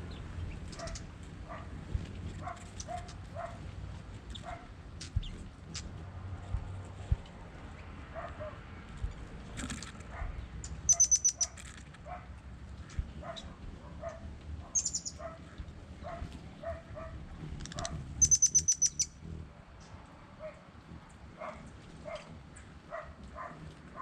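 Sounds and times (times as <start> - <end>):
songbird trilling: 10.6 - 11.6, 14.7 - 15.2, 17.7 - 19.3
lower bird call: 18.2 - 19.3.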